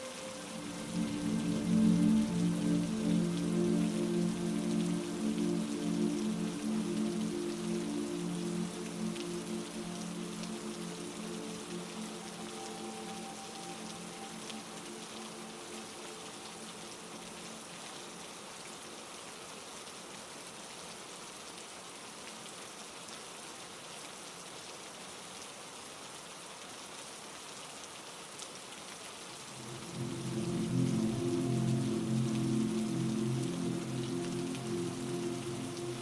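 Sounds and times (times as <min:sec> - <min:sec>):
low steady tones: 0:00.0 - 0:17.8, 0:29.5 - 0:36.0
heavy rain: 0:00.0 - 0:36.0.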